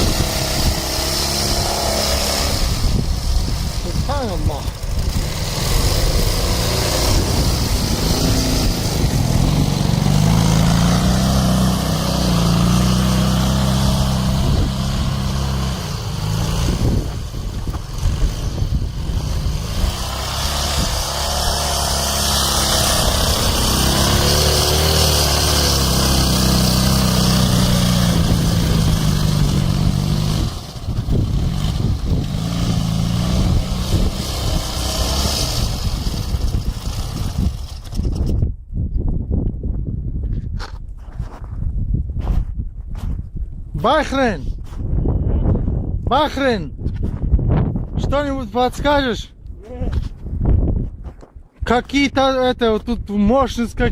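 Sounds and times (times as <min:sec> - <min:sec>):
motorcycle engine revving: 0:00.0 - 0:38.4.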